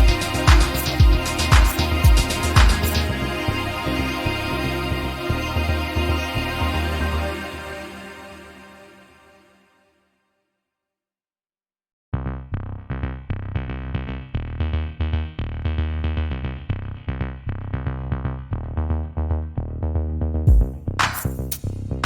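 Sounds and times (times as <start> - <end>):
electronic music with drum-machine beat: 0.0 - 7.0, 20.5 - 21.7.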